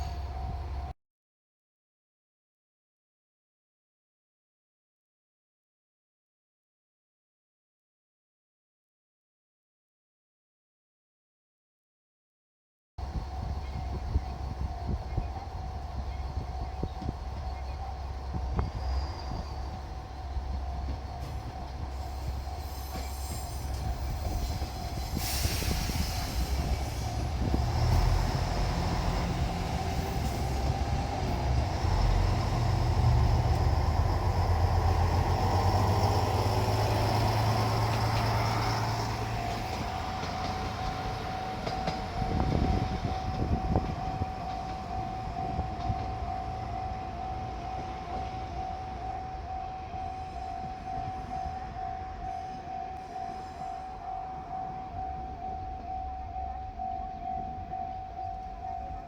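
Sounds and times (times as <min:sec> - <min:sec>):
diesel railcar passing: 0:00.0 - 0:00.9, 0:13.0 - 0:59.0
crossing alarm ringing: 0:13.0 - 0:59.0.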